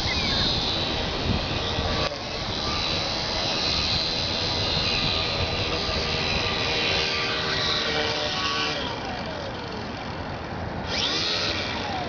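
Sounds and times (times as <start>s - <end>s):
small motor and propeller whine: 0.0s - 12.0s.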